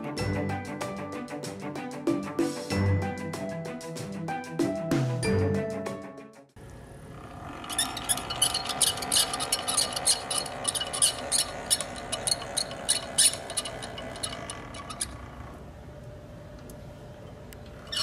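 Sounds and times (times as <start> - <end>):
mixer motor hum: 6.6 - 16.1
rapid clicking and squeaking: 7.4 - 15.5, 17.7 - 18.0.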